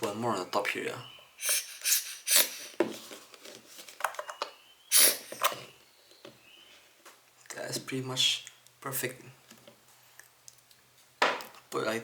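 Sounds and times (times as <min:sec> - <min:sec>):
rustling and rubbing of lens cleaning: 0:01.4 - 0:04.1.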